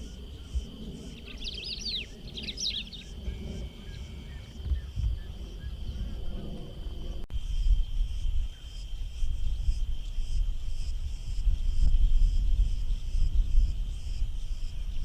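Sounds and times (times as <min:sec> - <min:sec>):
faint chirps: 0:00.0 - 0:06.5
high insect drone: 0:00.0 - 0:15.0
wind buffeting microphone: 0:00.0 - 0:15.0.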